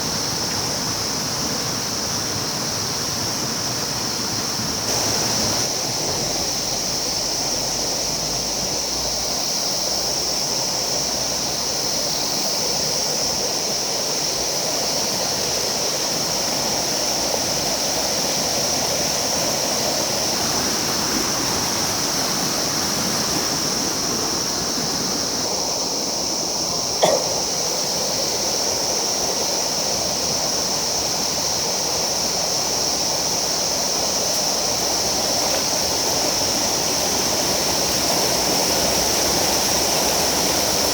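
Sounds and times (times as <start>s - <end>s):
river water rushing over rocks: 0.0s - 12.0s, 13.3s - 40.9s
short knock: 27.0s - 27.6s.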